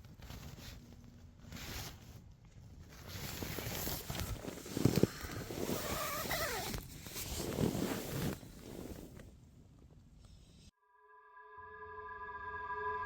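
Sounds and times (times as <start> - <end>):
rustling and handling noises: 0.0 - 10.0.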